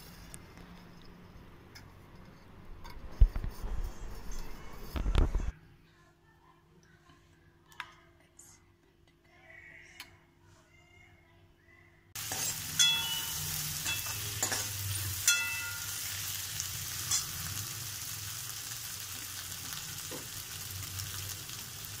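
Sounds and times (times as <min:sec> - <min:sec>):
food sizzling in oil: 0:12.2 - 0:22.0
utensil clinking against pan: 0:12.3 - 0:16.2.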